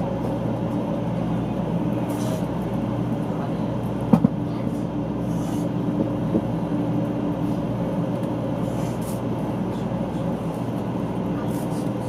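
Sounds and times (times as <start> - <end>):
train cabin rumble: 0.0 - 12.0.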